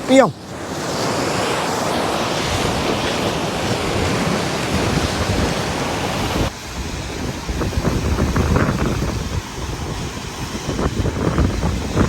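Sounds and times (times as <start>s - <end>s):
ocean surf washing on shore: 0.0s - 12.0s
wind buffeting microphone: 2.4s - 12.0s.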